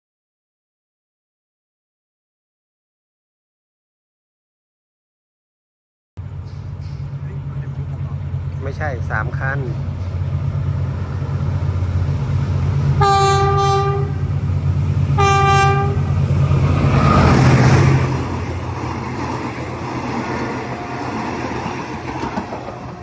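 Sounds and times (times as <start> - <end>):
train engine drone: 6.2 - 23.0
train horn blasts: 13.0 - 14.4, 15.2 - 16.3.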